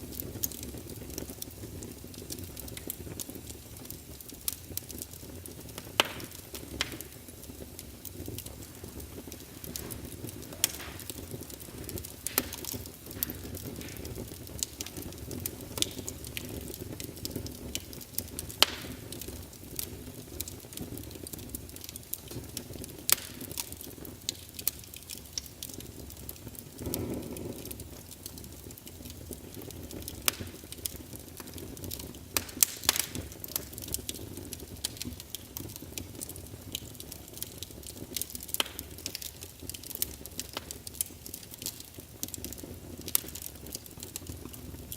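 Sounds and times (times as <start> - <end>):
logs crackling and popping: 0.0 - 44.9
low rumble of flames: 0.0 - 44.9
soft whoosh of flame: 0.0 - 44.9.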